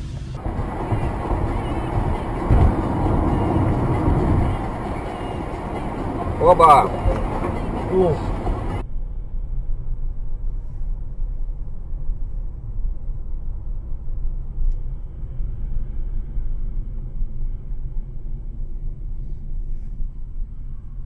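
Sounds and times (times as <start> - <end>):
vehicle engine and road rumble: 0.0 - 8.8.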